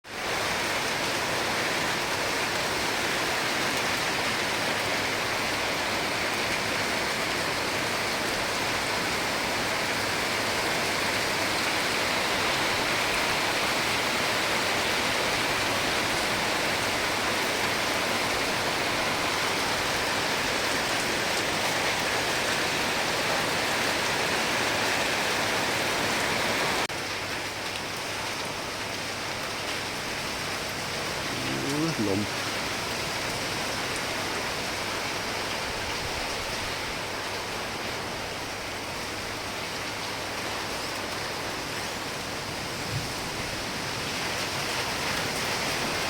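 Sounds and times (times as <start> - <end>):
heavy rain hissing: 30.8 - 32.7.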